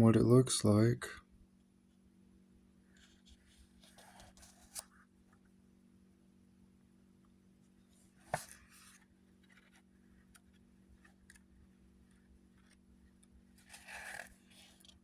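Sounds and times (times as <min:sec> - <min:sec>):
paper rustling: 0:13.6 - 0:15.0.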